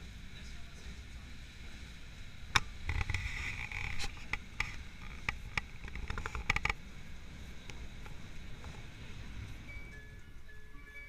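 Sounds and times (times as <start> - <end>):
sharp clicks and rattles: 2.5 - 6.9.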